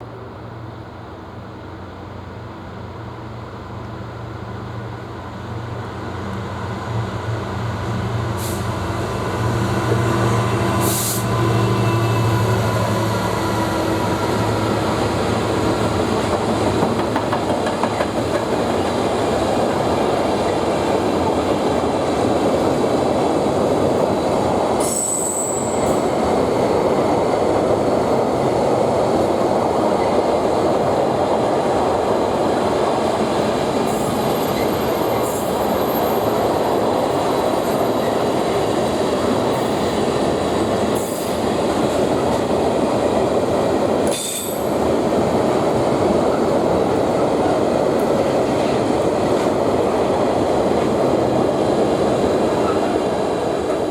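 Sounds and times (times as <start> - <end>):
freight train wheels rumbling on rail: 0.1 - 53.9
wagon knocks: 16.3 - 18.6
high wheel squeal: 24.8 - 25.9.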